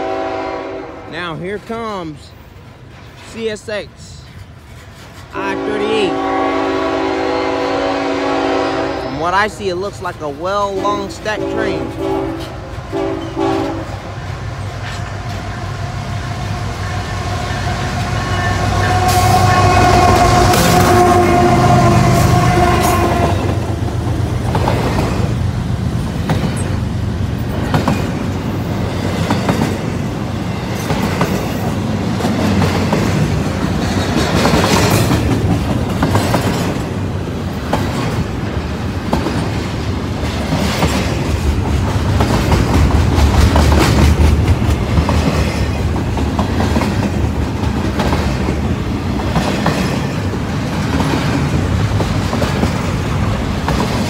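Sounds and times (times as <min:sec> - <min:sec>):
locomotive horn chord: 0:00.0 - 0:01.1, 0:05.5 - 0:09.4, 0:11.4 - 0:14.0, 0:17.7 - 0:23.6
wheel clicks and clacks on rails: 0:30.8 - 0:37.0.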